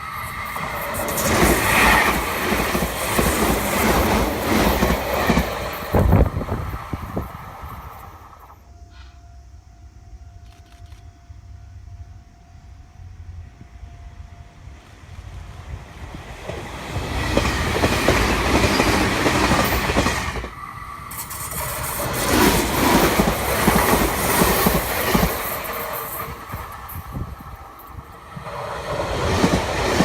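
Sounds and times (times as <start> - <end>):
electric train passing: 0.0 - 30.0
wheels clacking over rail joints: 16.2 - 30.0.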